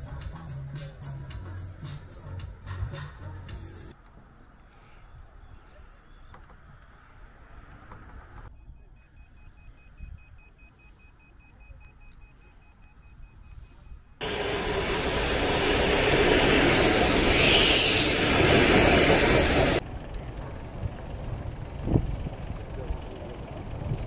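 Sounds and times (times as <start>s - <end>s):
thin high tone: 14.2s - 19.8s
train rushing rumble: 14.2s - 24.0s.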